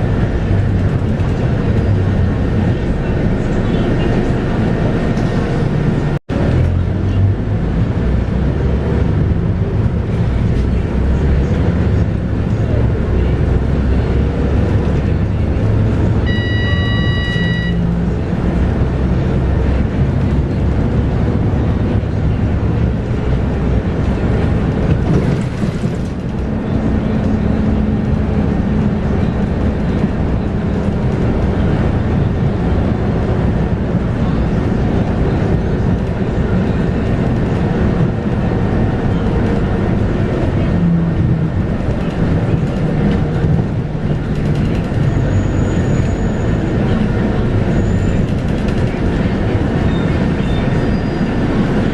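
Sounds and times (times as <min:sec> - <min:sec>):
bus diesel engine running: 0:00.0 - 0:51.9
road noise: 0:00.0 - 0:51.9
electronic beep: 0:16.3 - 0:17.9.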